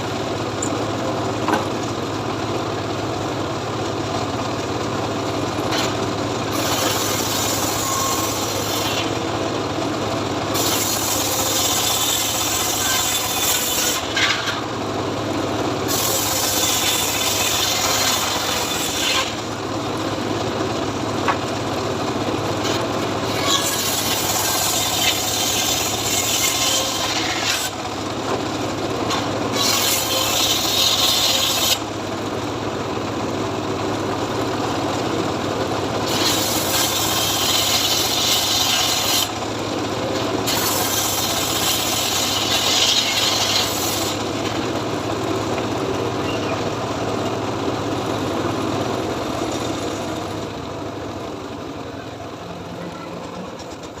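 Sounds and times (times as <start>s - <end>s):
engine running steadily: 0.0s - 54.0s
saw blade rasping through wood: 5.7s - 9.3s, 10.5s - 14.7s, 15.8s - 19.6s, 22.6s - 28.0s, 29.1s - 31.9s, 36.0s - 39.4s, 40.1s - 44.6s.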